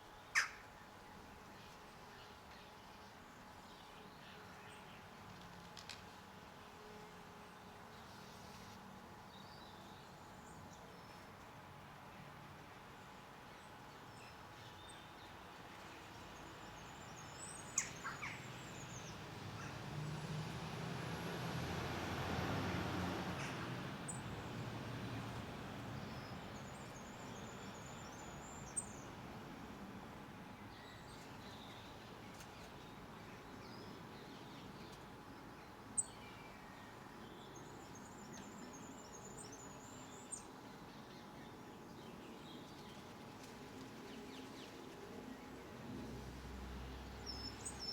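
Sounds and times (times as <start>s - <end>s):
small birds chirping: 16.3s - 20.3s, 47.0s - 47.9s.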